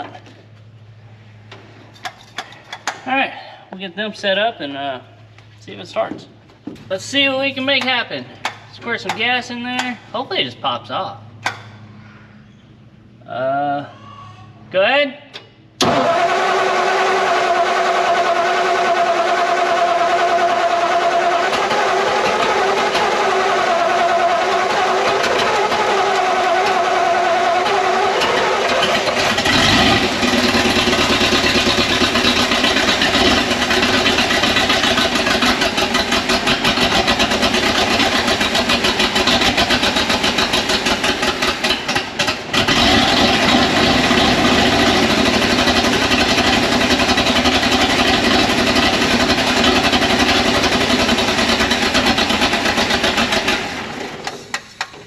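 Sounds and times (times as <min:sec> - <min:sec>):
truck engine running: 0:15.8 - 0:54.9.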